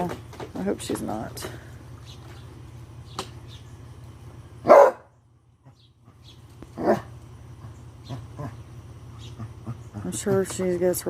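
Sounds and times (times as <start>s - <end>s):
animal calling: 5.7s - 10.4s.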